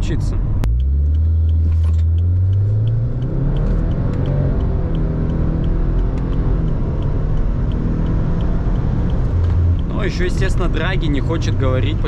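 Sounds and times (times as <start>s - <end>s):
road and tyre rumble: 0.0s - 12.0s
car engine accelerating hard: 0.5s - 12.0s.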